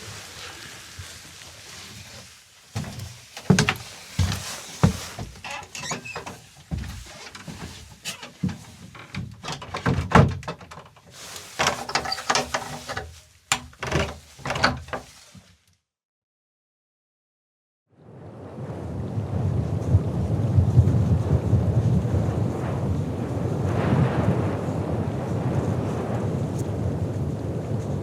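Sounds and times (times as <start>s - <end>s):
rustling: 0.0s - 9.4s, 10.9s - 15.7s
knocks and thuds: 2.8s - 10.8s.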